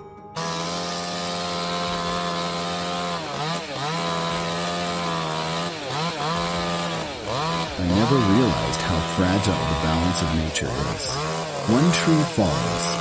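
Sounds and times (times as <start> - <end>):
chainsaw running at high revs: 0.4 - 13.0.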